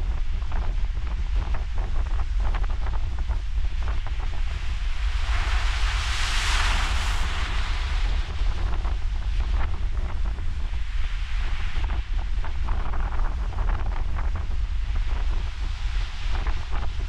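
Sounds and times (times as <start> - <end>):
wind buffeting microphone: 0.0 - 17.0
wave breaking and washing in: 4.5 - 9.9.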